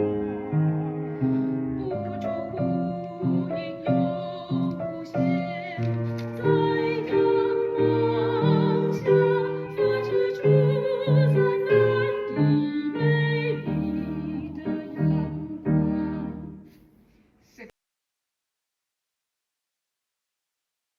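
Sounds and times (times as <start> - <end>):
piano accompaniment: 0.0 - 16.7
soprano singing: 0.0 - 16.7.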